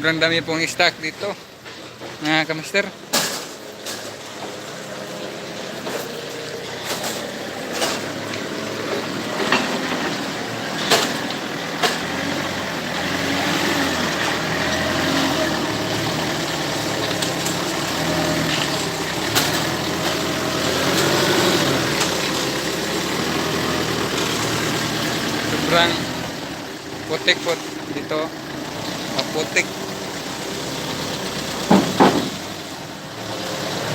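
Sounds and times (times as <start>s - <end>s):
truck engine idling: 0.0s - 33.9s
sharp knocks: 31.6s - 32.5s.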